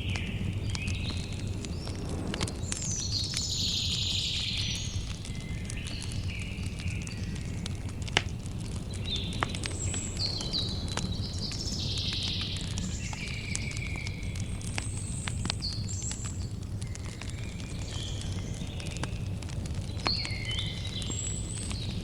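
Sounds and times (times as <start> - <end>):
campfire crackling and popping: 0.0 - 22.0
steady low rumble: 0.3 - 4.0.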